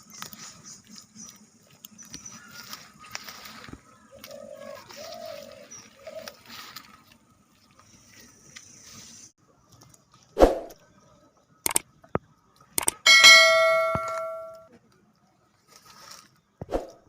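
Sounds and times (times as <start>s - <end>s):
bird cooing: 4.1s - 6.6s.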